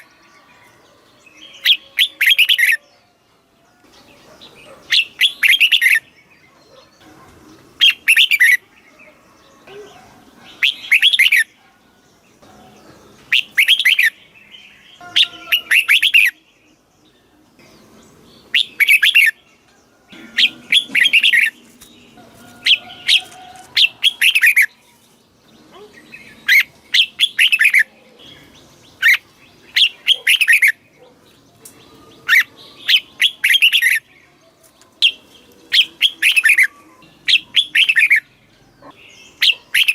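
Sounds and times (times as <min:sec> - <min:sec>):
bird singing warbling phrases: 0:00.0 - 0:03.2, 0:03.8 - 0:39.9.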